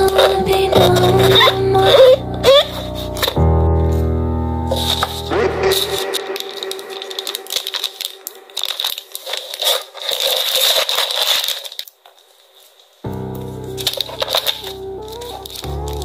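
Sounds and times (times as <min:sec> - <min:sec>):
packing materials crinkling: 0:00.0 - 0:04.1, 0:04.7 - 0:16.0
background music: 0:00.0 - 0:09.2, 0:13.1 - 0:16.0.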